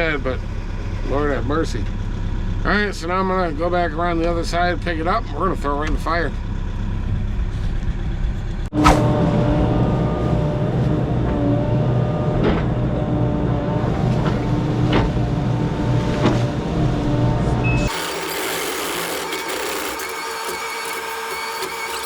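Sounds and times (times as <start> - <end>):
heavy equipment engine running: 0.0 - 22.0
steady machine whine: 6.2 - 22.0.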